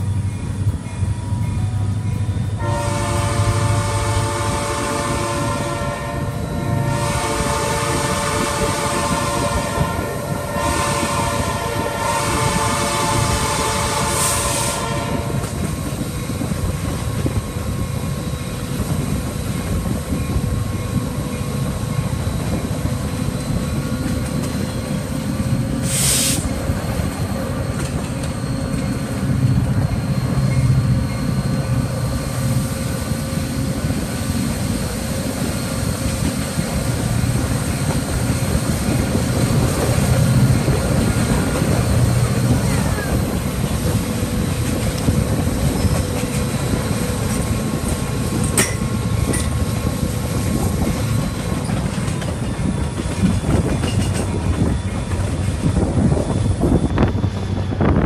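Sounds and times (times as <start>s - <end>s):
train rumble and wheel clatter: 0.0s - 58.0s
train horn chord: 2.6s - 15.6s
brief high hiss: 25.8s - 26.5s.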